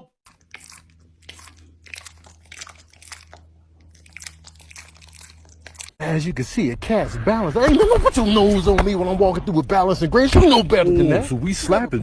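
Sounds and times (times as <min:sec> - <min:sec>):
crunchy chewing: 0:00.2 - 0:06.0
steady low hum: 0:00.2 - 0:07.5.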